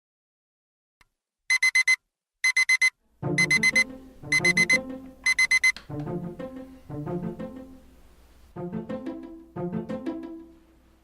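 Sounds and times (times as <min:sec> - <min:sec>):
alarm clock beeping: 0:01.5 - 0:05.8
music: 0:03.2 - 0:11.0.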